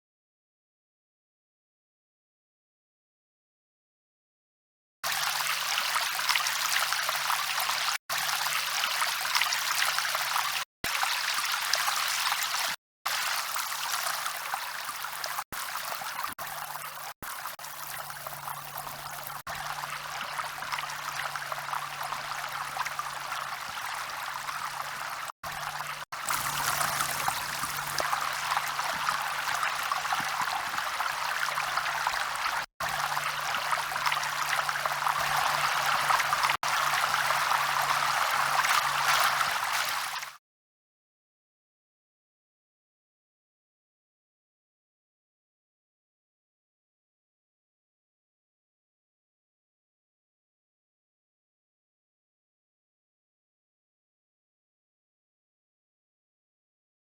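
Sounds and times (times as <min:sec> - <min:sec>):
river water rushing: 0:26.2 - 0:30.2.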